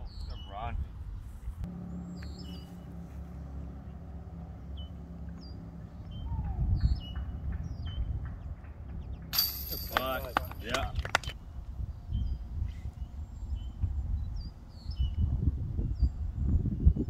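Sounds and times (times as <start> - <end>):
low steady rumble: 0.8 - 17.0
small bird chirping: 1.8 - 3.0.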